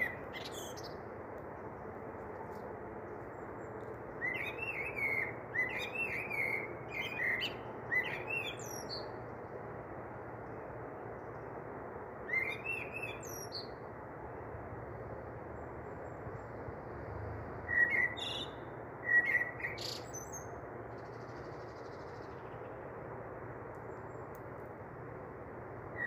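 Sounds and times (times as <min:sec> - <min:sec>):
small birds chirping: 0:00.0 - 0:01.1, 0:03.1 - 0:09.3, 0:17.7 - 0:22.8
steady low hiss: 0:00.0 - 0:26.0.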